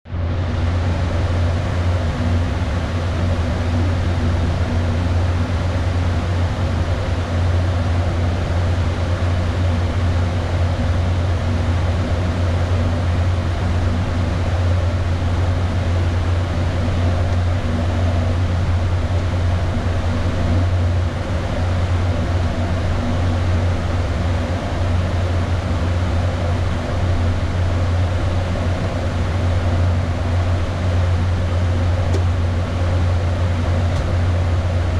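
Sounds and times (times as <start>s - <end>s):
air-conditioning blowing: 0.1s - 34.9s
low hum: 0.1s - 34.9s
air rushing past cockpit: 0.2s - 34.9s.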